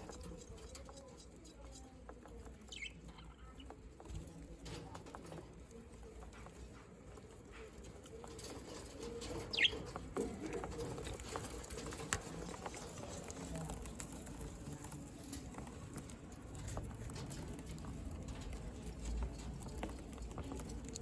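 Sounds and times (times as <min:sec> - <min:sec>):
budgerigar chirp: 0:09.5 - 0:09.7.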